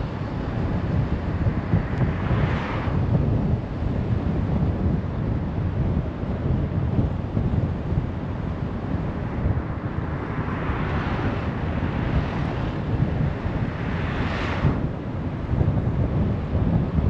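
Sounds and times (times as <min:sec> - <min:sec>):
car road and wind rumble: 0:00.0 - 0:17.0
wind buffeting microphone: 0:00.0 - 0:17.0
vehicle passing: 0:09.0 - 0:14.8.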